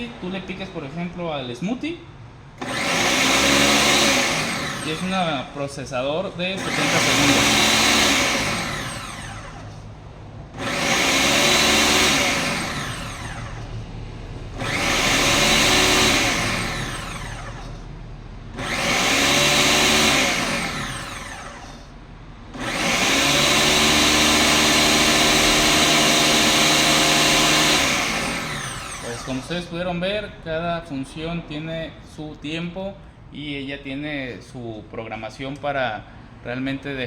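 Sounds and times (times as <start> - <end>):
blender motor whirring: 2.6 - 5.7, 6.5 - 9.9, 10.5 - 13.8, 14.5 - 17.9, 18.5 - 29.8.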